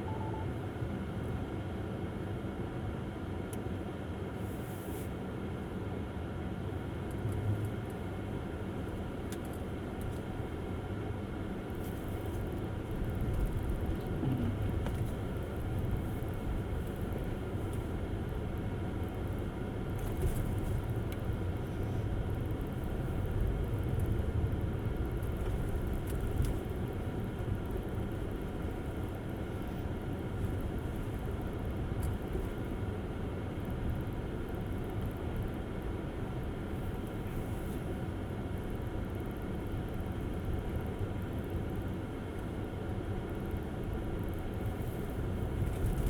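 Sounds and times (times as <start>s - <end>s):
tyre and road rumble: 12.1s - 17.4s.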